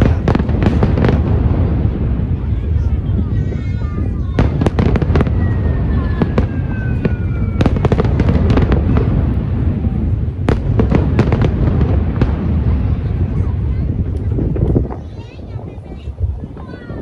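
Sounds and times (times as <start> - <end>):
fireworks bangs and crackles: 0.0 - 17.0
fireworks rumbling: 0.0 - 17.0
falling whistle: 5.3 - 8.2.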